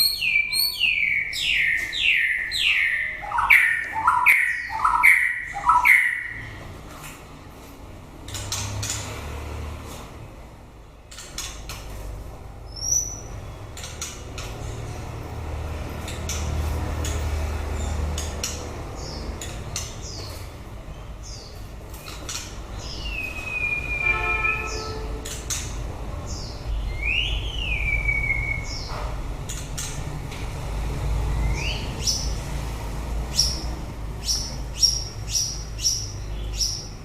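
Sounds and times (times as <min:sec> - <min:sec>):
bird whistles: 0:22.9 - 0:25.0, 0:27.0 - 0:28.9.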